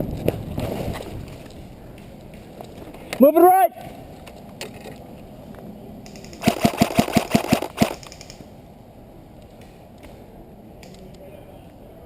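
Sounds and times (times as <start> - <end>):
airsoft gun firing: 6.1 - 8.4.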